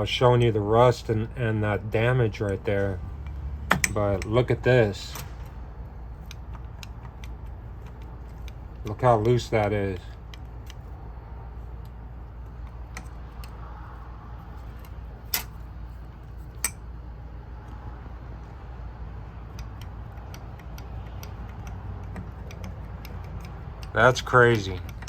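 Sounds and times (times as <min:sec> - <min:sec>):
steady low hum: 0:00.0 - 0:25.0
metallic clicks of loose piston: 0:06.2 - 0:10.9, 0:19.4 - 0:25.0.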